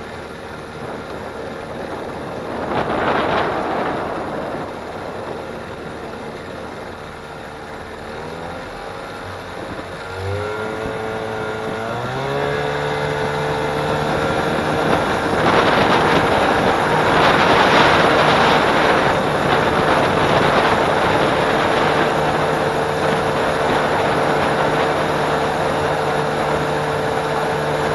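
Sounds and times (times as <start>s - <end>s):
outboard motor running: 0.0s - 27.9s
wind and water rushing: 0.0s - 27.9s.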